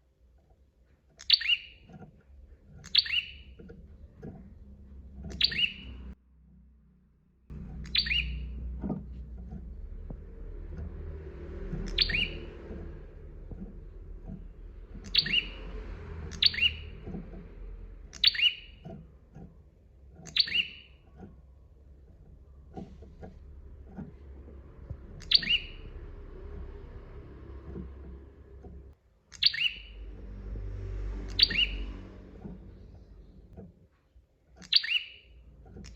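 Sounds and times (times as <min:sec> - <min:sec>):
low rumble: 0:02.4 - 0:19.6, 0:21.0 - 0:29.0, 0:29.8 - 0:33.6
bird calling sharp notes: 0:05.3 - 0:06.1, 0:07.7 - 0:08.7, 0:11.7 - 0:13.0, 0:13.6 - 0:17.2, 0:18.0 - 0:18.8, 0:20.2 - 0:20.9, 0:25.1 - 0:26.8, 0:31.2 - 0:32.6.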